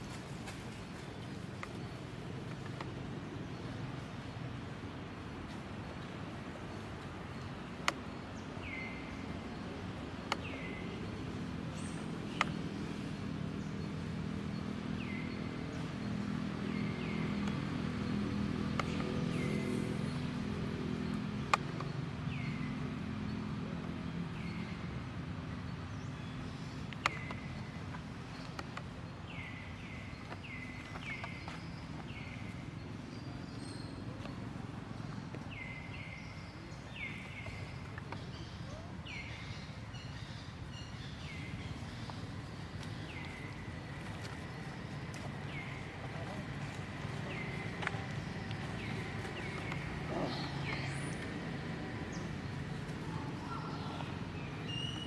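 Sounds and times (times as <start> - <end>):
chirping animal calls: 46.6 - 51.4.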